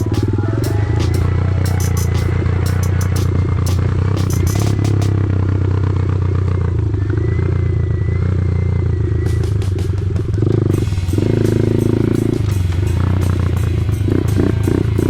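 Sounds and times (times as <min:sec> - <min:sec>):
sharp clattering knocks: 0:00.0 - 0:05.2
dirt bike engine running: 0:00.0 - 0:15.0.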